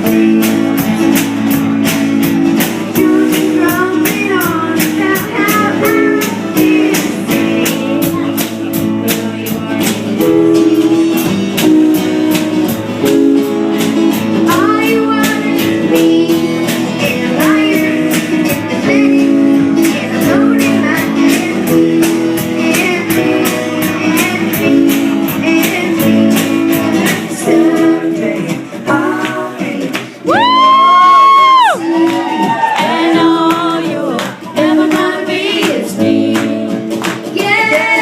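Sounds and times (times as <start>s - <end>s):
strummed guitar: 0.0s - 38.0s.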